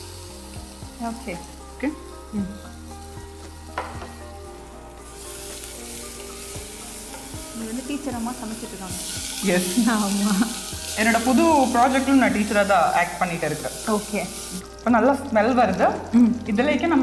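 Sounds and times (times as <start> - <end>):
garlic sizzling in a pot: 0.0 - 17.0
spatula knocking on a pot: 3.7 - 4.2.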